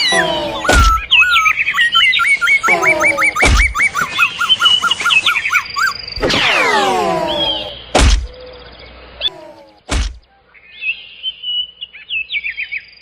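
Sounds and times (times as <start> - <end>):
small birds chirping: 0.0 - 13.0
sharp thunks: 0.6 - 1.1, 3.4 - 3.8, 7.9 - 8.4, 9.8 - 10.3.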